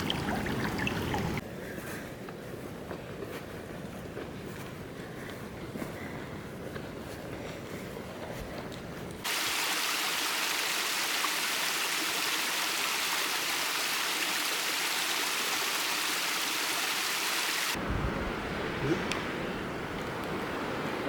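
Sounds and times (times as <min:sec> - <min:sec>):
stream water rushing: 0:00.0 - 0:01.4, 0:09.3 - 0:17.8.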